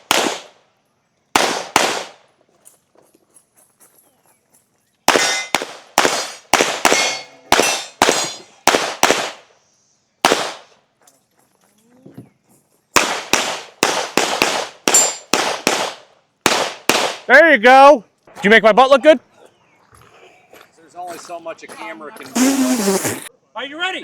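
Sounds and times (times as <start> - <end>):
rapid gunshots: 0.0 - 0.6, 1.4 - 2.2, 5.1 - 9.4, 10.2 - 10.7, 13.0 - 17.3.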